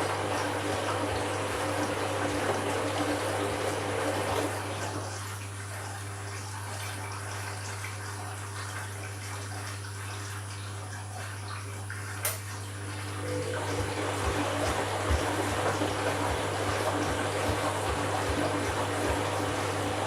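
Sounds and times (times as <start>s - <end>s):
low machine hum: 0.0s - 8.4s, 12.4s - 20.0s
water swishing in washing machine: 0.0s - 20.0s.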